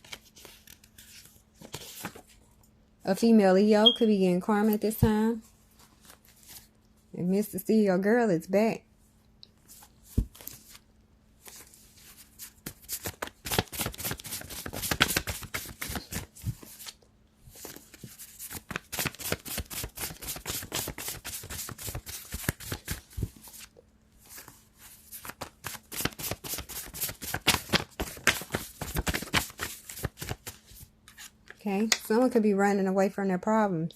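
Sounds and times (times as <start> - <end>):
cards being shuffled: 0.0 - 2.3, 9.7 - 10.8, 11.4 - 23.7, 24.3 - 32.0.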